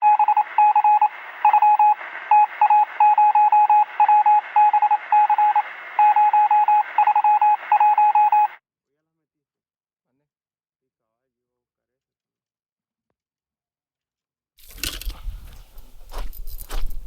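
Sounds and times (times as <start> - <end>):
electronic beeping: 0.0 - 8.6.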